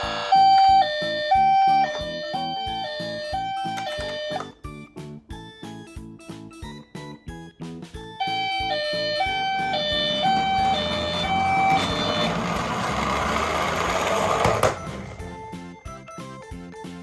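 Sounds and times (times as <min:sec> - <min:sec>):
toy two-tone siren: 0:00.0 - 0:04.6, 0:08.2 - 0:15.5
click: 0:03.6 - 0:04.5
toy car rolling down plastic track: 0:08.3 - 0:15.5.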